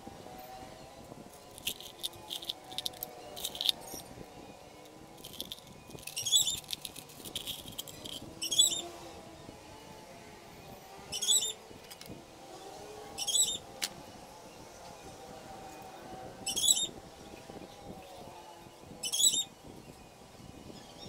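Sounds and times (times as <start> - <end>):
small birds chirping: 1.4 - 9.0, 11.1 - 11.6, 12.7 - 13.6, 16.4 - 17.0, 19.0 - 19.8.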